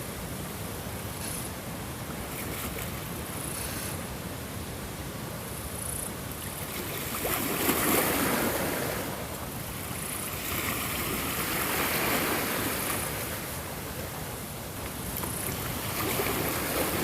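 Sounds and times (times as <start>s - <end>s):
ocean waves washing onto shore: 6.2s - 17.0s.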